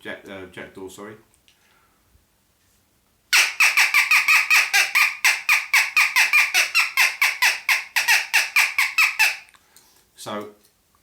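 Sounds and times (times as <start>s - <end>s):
crow call squawking: 3.4s - 9.5s.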